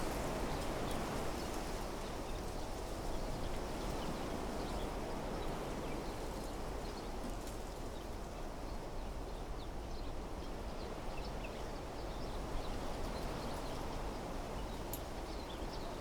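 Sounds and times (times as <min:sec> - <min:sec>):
wind rustling through trees: 0:00.0 - 0:06.6.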